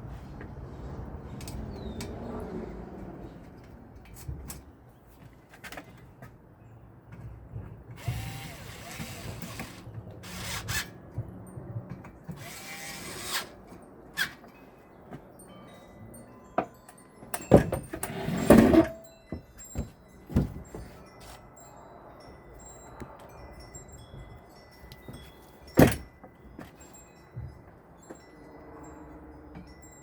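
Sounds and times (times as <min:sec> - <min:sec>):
power drill whining: 0:08.0 - 0:10.7, 0:12.4 - 0:13.5.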